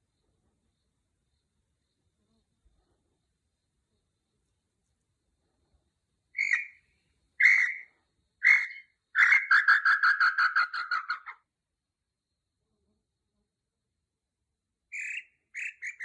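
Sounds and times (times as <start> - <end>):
bird singing: 6.3 - 11.3, 14.9 - 16.0.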